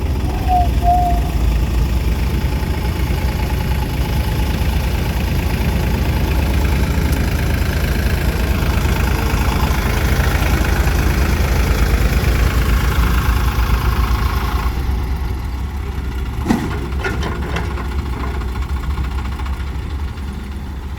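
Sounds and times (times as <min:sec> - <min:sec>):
diesel engine chugging: 0:00.0 - 0:20.9
metal clank: 0:16.4 - 0:18.6.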